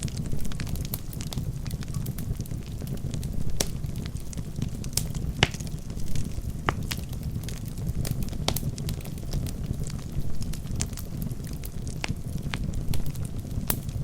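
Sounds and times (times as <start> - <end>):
burning wood crackling and popping: 0.0 - 14.0
fire flames rumbling: 0.0 - 14.0.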